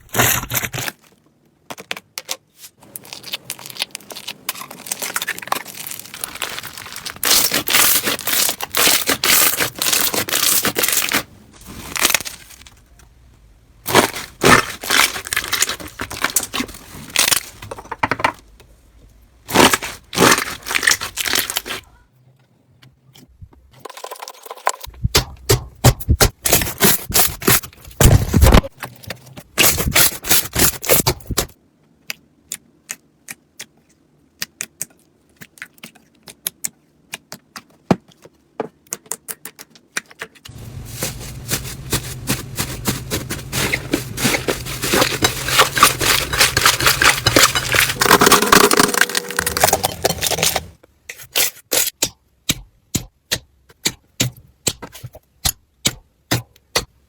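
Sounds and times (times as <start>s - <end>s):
slime crackling and popping: 42.2s - 50.7s.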